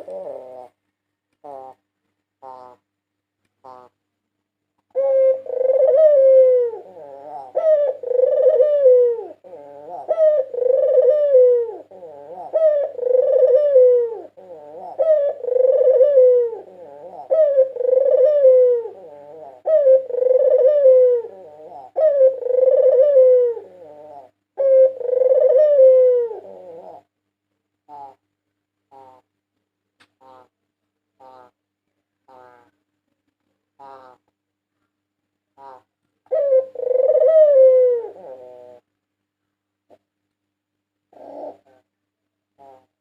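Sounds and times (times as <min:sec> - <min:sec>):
dove cooing: 0:00.0 - 0:00.8, 0:01.4 - 0:01.8, 0:02.4 - 0:02.9, 0:03.6 - 0:04.0, 0:04.9 - 0:27.2, 0:27.9 - 0:28.2, 0:28.9 - 0:29.3, 0:31.2 - 0:31.6, 0:32.3 - 0:32.8, 0:33.8 - 0:34.3, 0:35.6 - 0:38.9, 0:41.1 - 0:42.0, 0:42.6 - 0:43.0.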